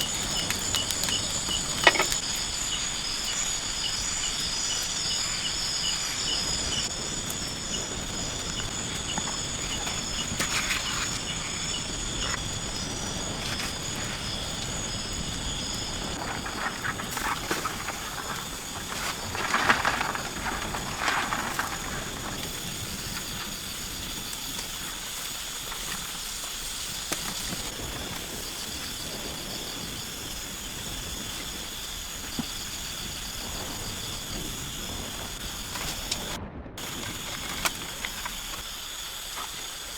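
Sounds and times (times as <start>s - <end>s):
insects high pulsing chorus: 0.0s - 39.9s
short rustling: 16.2s - 23.4s.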